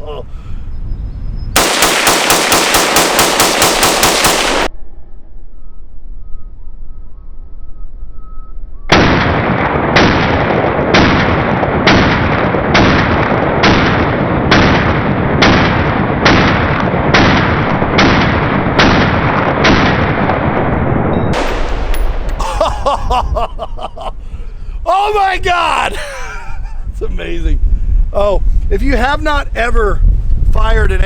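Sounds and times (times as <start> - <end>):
rifle shots: 1.6 - 4.7, 8.9 - 20.6, 21.4 - 22.4.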